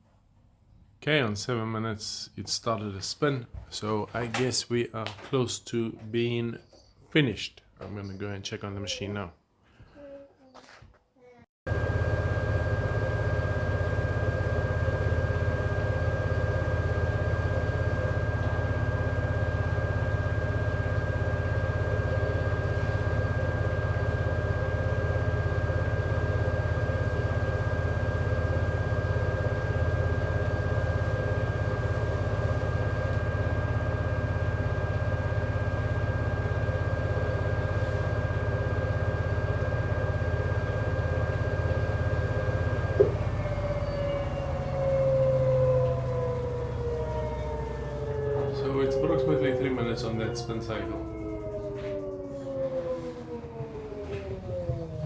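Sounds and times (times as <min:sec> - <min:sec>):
thin steady whine: 0:11.7 - 0:55.0
washing machine spinning: 0:11.7 - 0:55.0.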